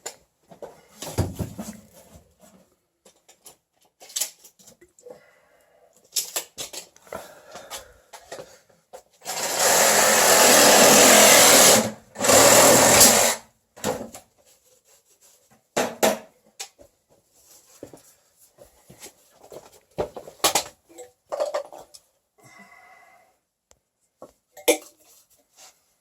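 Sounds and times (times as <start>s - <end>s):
power tool running: 9.2s - 13.4s.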